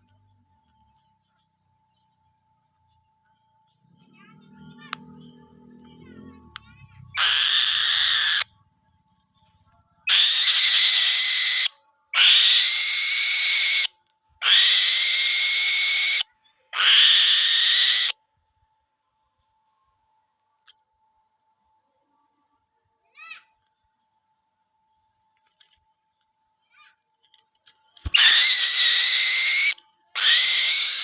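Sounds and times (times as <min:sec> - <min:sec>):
bird hissing screeches: 0:07.2 - 0:08.4, 0:10.1 - 0:16.2, 0:16.8 - 0:18.2, 0:28.1 - 0:31.0.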